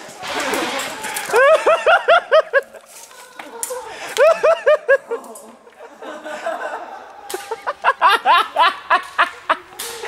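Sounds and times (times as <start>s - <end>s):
person cackling: 1.3s - 5.4s.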